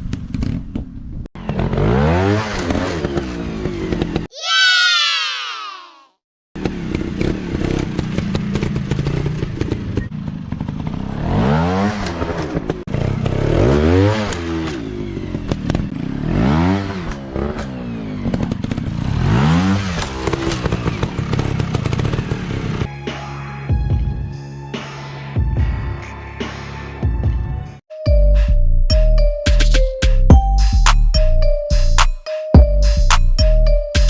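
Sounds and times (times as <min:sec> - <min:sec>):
dirt bike engine revving: 0:01.4 - 0:04.3, 0:06.6 - 0:22.9.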